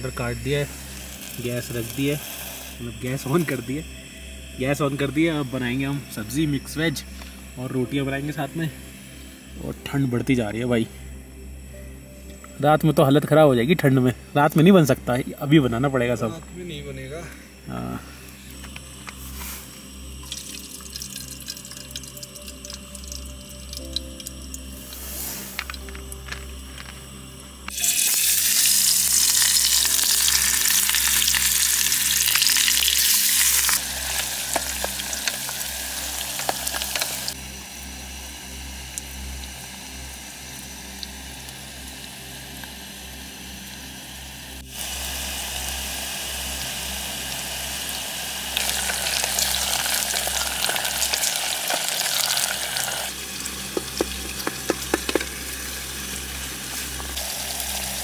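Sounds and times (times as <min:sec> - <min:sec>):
vegetables sizzling in hot oil: 0:00.0 - 0:04.6, 0:19.2 - 0:26.2, 0:27.2 - 0:58.0
spatula tapping a pot: 0:53.8 - 0:55.3.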